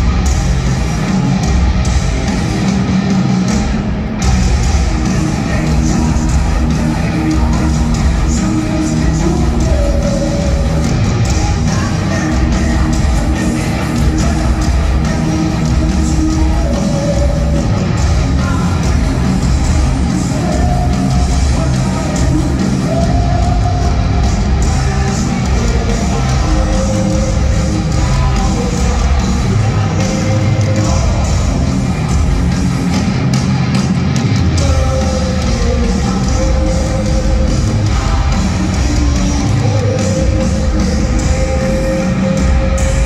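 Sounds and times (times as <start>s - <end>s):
heavy metal band playing live: 0.0s - 43.0s.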